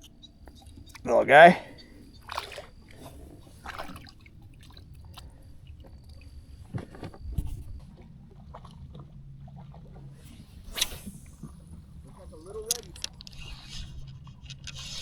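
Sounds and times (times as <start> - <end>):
low steady rumble: 0.0 - 15.0
light clicks and knocks on kayak: 2.1 - 10.2.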